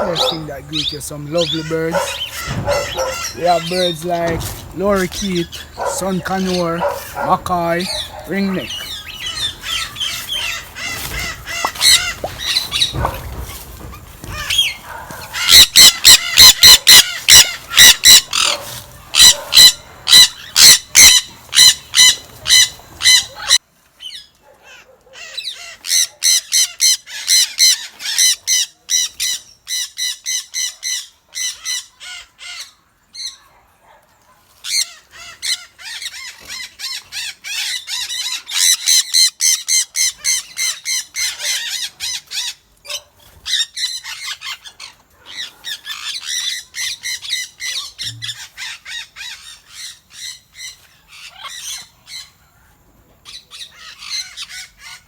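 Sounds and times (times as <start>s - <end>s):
parrots screeching: 0.0s - 4.5s, 5.3s - 13.5s, 14.3s - 23.6s, 34.6s - 42.6s.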